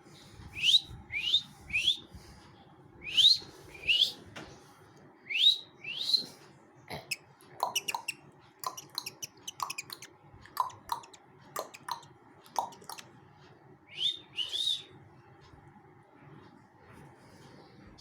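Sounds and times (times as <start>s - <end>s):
bird chirping: 0.6s - 2.0s, 3.0s - 4.2s, 5.3s - 6.4s, 7.1s - 13.0s, 13.9s - 15.0s
bird rising whistles: 0.6s - 2.0s, 3.0s - 4.2s, 5.3s - 6.3s, 13.9s - 14.9s.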